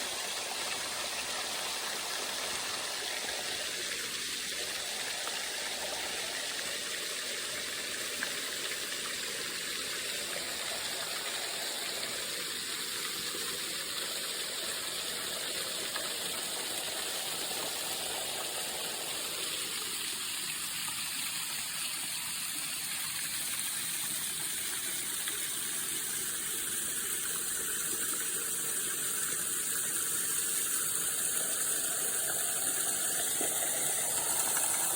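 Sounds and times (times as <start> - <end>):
waterfall rushing: 33.5 - 34.9.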